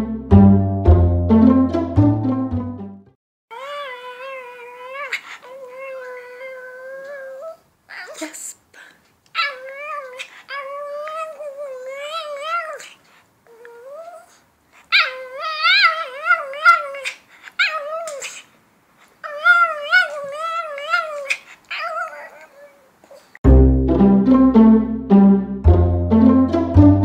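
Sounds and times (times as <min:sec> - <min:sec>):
music: 0:00.0 - 0:03.2, 0:23.5 - 0:27.0
dog whine-howling: 0:03.5 - 0:08.1, 0:09.4 - 0:12.8, 0:14.9 - 0:18.2, 0:19.2 - 0:22.9.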